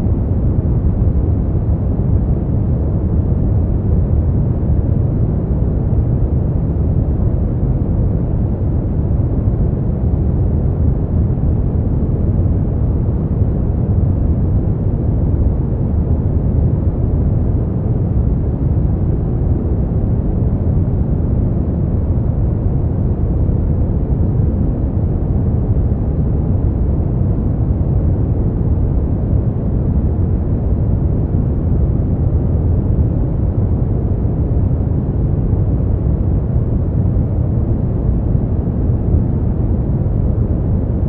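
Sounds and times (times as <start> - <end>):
deep rumbling brown noise: 0.0 - 41.0.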